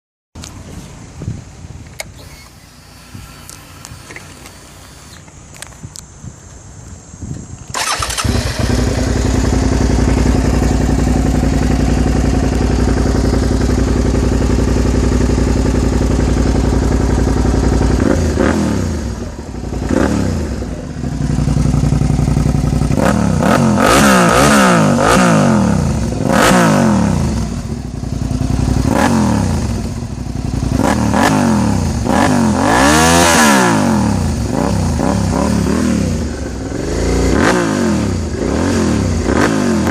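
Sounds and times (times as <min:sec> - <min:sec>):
motorcycle engine revving: 0:07.7 - 0:39.9
motorcycle engine idling: 0:07.8 - 0:32.7, 0:34.1 - 0:39.9.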